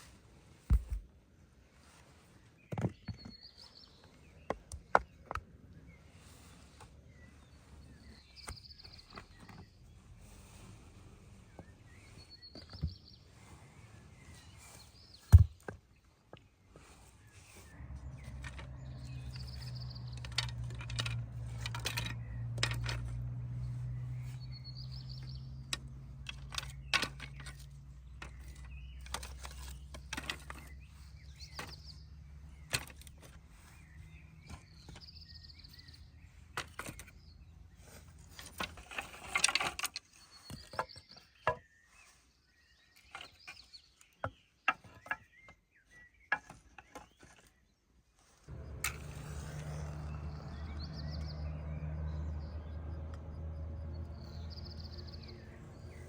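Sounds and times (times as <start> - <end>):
bird chirping: 7.0 - 10.0, 17.2 - 38.2, 48.5 - 56.0
clicks and knocks of handling: 18.3 - 23.4, 25.7 - 30.8, 32.6 - 33.4.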